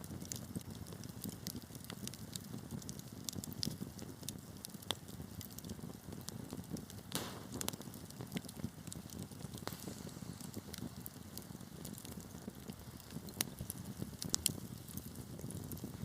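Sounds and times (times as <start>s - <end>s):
burning wood crackling and popping: 0.0s - 16.0s
fire flames rumbling: 0.0s - 16.0s.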